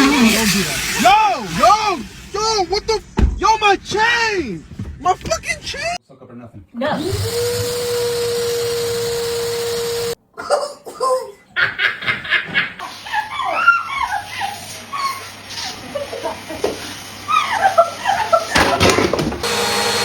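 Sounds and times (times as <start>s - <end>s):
vacuum cleaner whine: 7.0s - 10.2s, 14.0s - 20.0s
people laughing: 10.4s - 19.2s.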